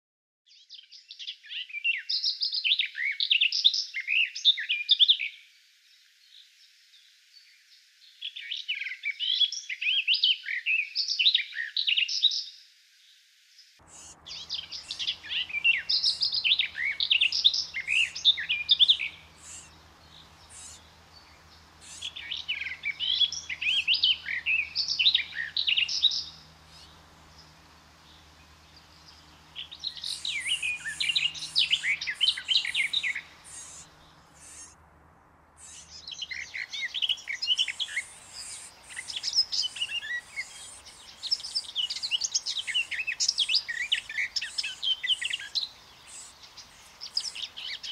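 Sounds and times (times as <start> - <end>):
bird warbling song: 13.8 - 47.9.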